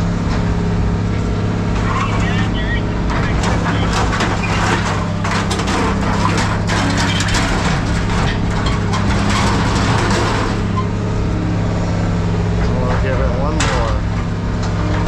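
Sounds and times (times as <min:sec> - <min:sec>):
engine humming: 0:00.0 - 0:15.0
scrap metal clattering: 0:01.7 - 0:11.1.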